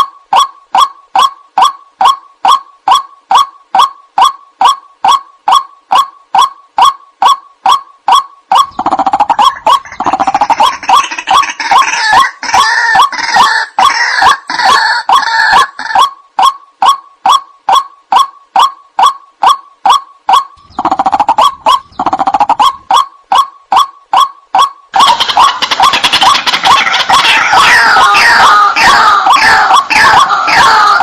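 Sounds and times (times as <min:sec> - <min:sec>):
waterhen croaking calls: 0:00.0 - 0:31.0
harsh bird chorus: 0:25.0 - 0:31.0.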